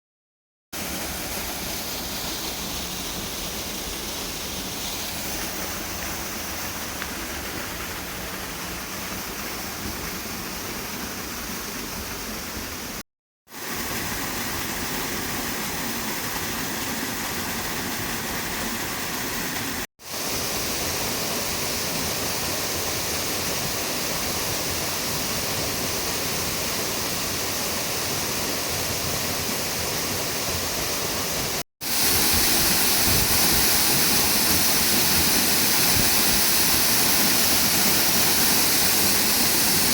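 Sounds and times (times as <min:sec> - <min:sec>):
waterfall roaring: 0:13.6 - 0:39.9.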